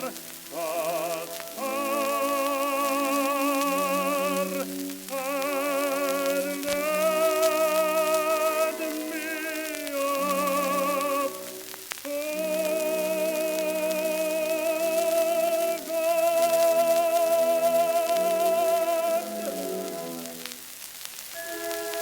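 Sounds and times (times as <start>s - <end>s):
old record of vibrato singing: 0.0s - 22.0s
record surface crackle: 0.0s - 22.0s
sustained accompaniment: 21.3s - 22.0s.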